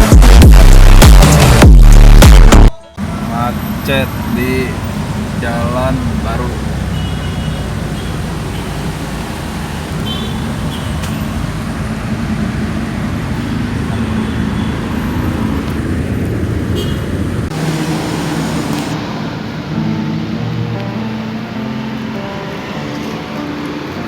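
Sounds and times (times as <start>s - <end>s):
road traffic noise: 0.0s - 24.0s
car engine running: 17.3s - 20.2s.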